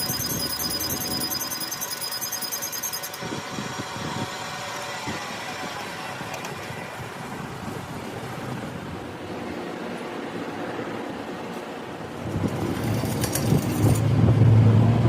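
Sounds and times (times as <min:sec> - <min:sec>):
high chiming: 0:00.0 - 0:03.3.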